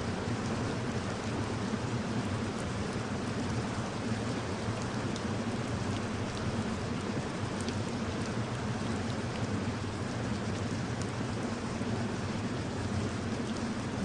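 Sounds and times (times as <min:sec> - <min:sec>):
steady rain hiss: 0:00.0 - 0:14.0
rain drop ticks: 0:04.3 - 0:11.5, 0:13.1 - 0:13.6.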